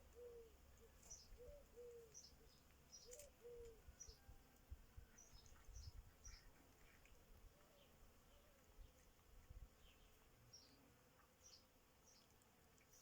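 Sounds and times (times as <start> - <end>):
dove cooing: 0.0 - 2.4, 3.0 - 3.9
small birds chirping: 0.0 - 4.3, 5.0 - 13.0.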